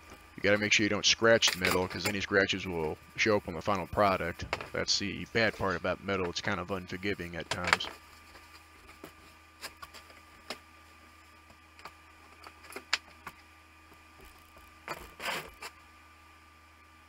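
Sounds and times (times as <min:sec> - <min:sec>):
faint steady hum: 0:00.0 - 0:17.0
brief rustling scrape: 0:15.0 - 0:15.8.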